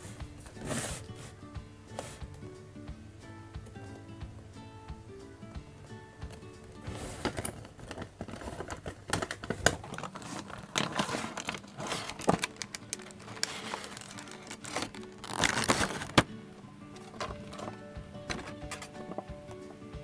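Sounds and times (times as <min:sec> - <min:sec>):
soft background music: 0:00.0 - 0:20.0
plastic packaging crinkling: 0:06.8 - 0:16.3.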